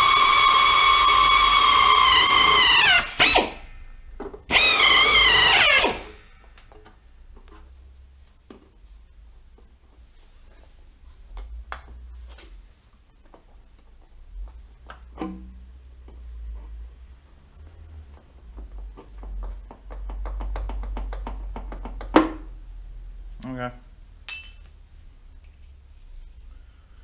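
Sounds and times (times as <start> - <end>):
low steady hum: 22.4 - 27.0
metal parts and tools knocking: 24.3 - 24.7.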